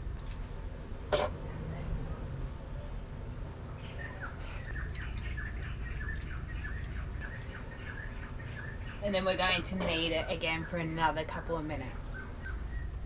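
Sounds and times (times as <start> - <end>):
low steady hum: 0.0 - 13.0
bird chirping: 3.8 - 11.2, 12.0 - 13.0.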